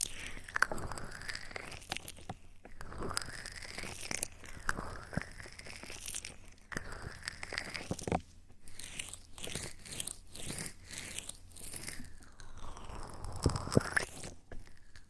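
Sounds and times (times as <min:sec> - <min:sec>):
soft crunching and crackling swishes: 0:00.0 - 0:15.0.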